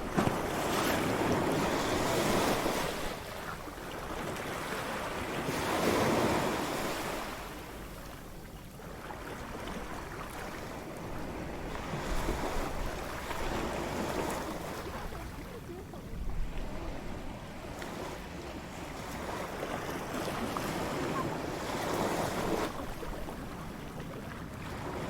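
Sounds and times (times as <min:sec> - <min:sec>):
surf washing ashore: 0:00.0 - 0:25.0.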